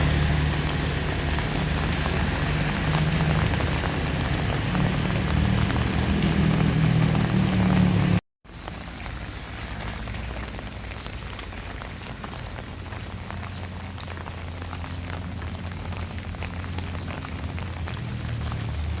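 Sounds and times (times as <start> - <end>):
low steady rumble: 0.0 - 8.2
heavy rain falling: 0.0 - 19.0
raindrops ticking: 0.0 - 19.0.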